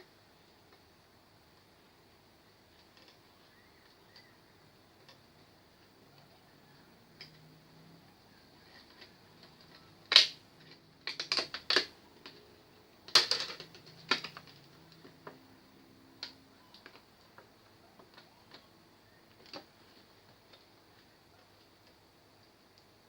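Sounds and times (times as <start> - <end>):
hard parts and tools clicking: 13.1 - 15.4.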